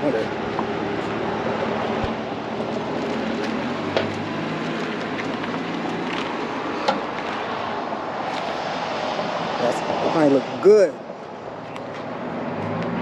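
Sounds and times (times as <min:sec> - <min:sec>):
car engine idling: 0:00.0 - 0:08.1.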